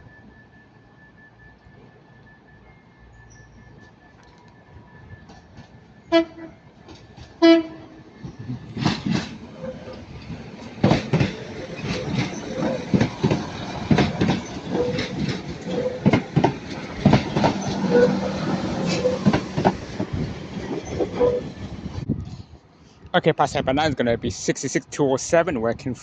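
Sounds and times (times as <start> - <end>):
train rumble: 0.0 - 26.0
train wheels clattering: 6.8 - 21.9.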